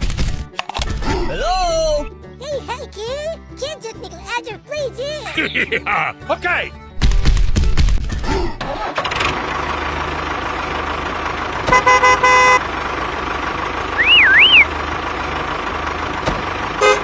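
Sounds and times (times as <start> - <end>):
vehicle horn honking: 11.7 - 13.0, 16.8 - 17.0
warbling whistle: 14.0 - 14.7.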